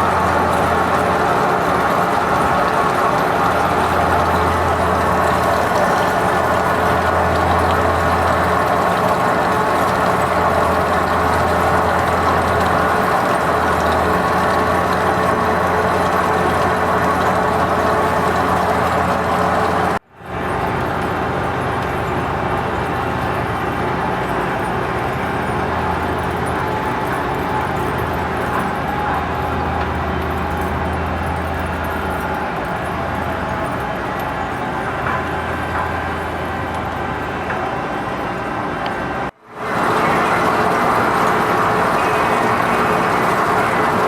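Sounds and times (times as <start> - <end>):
lathe cutting noise: 39.6 - 44.0
lathe humming: 39.6 - 44.0.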